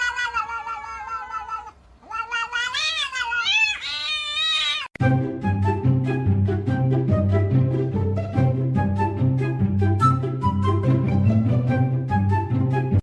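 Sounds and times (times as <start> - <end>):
cat yowling: 0.0 - 5.0.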